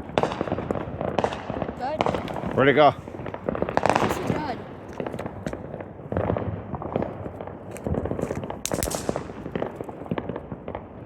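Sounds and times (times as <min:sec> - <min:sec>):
small fireworks crackling: 0:00.0 - 0:11.0
firework sharp bang: 0:07.9 - 0:10.8.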